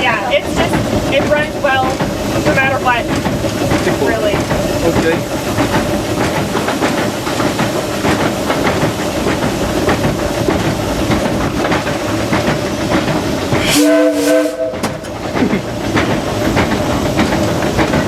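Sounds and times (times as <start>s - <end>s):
steam locomotive clatter: 0.0s - 18.0s
steam whistle blast: 13.6s - 15.0s.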